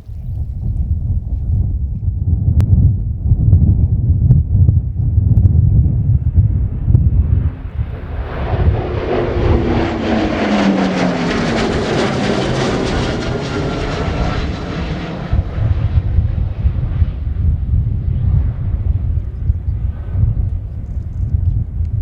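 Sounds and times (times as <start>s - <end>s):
wind buffeting microphone: 0.0s - 22.0s
jet aircraft fly-by: 6.0s - 22.0s.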